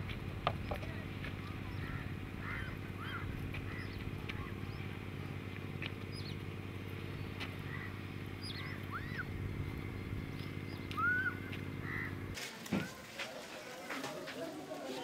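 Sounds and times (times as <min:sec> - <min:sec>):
steady low hum: 0:00.0 - 0:12.5
wild birds chirping and calling: 0:00.5 - 0:12.4.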